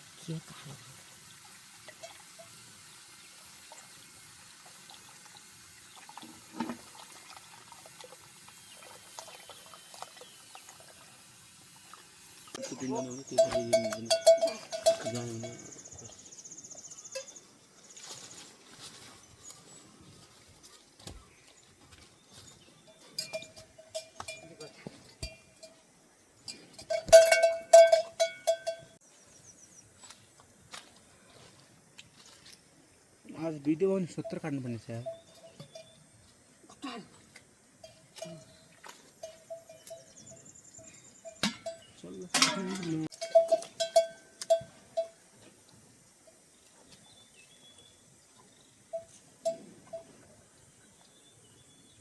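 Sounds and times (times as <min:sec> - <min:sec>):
livestock bell clanking: 0:12.8 - 0:16.1, 0:17.0 - 0:17.4, 0:22.9 - 0:29.0, 0:34.2 - 0:36.1, 0:39.2 - 0:45.3, 0:48.9 - 0:50.2.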